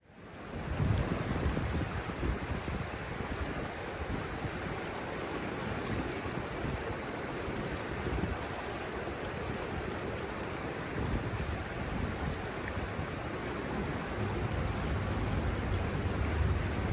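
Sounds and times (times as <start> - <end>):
river water rushing over stones: 0.0 - 16.9
wind buffeting microphone: 0.5 - 16.9.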